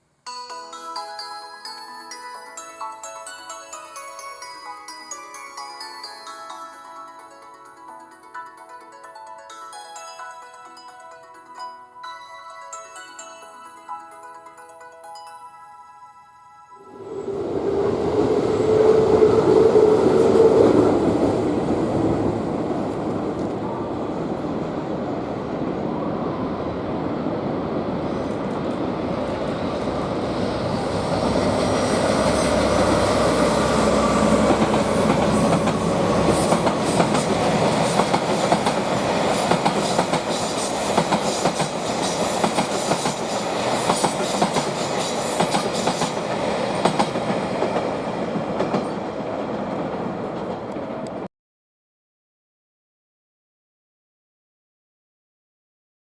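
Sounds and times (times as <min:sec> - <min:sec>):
train rumble: 0:16.9 - 0:51.3
train wheels clicking over rail joints: 0:28.3 - 0:51.2.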